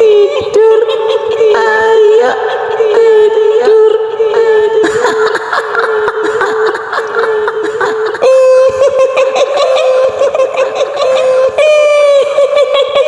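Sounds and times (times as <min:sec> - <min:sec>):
woman cackling laugh: 0:04.8 - 0:13.0.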